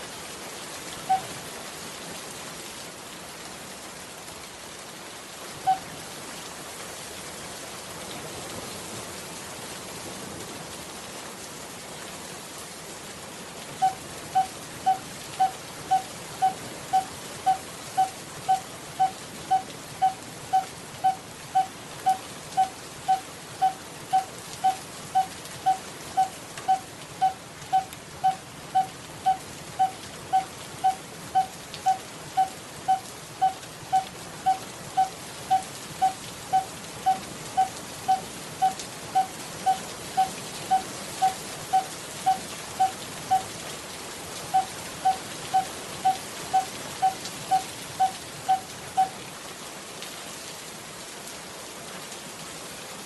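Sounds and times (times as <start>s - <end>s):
bird calling hollow tuk notes: 5.7s - 5.9s, 13.8s - 43.4s, 44.5s - 49.1s.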